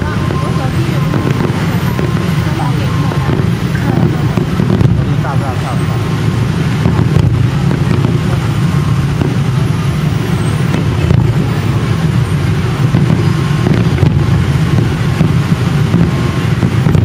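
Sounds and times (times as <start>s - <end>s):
fireworks rumble: 0.0s - 17.0s
sharp firework bangs: 0.0s - 17.0s.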